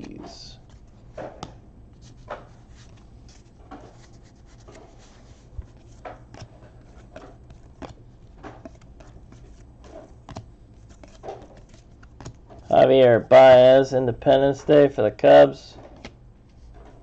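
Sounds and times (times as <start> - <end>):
trading cards sliding: 0.6 - 12.7.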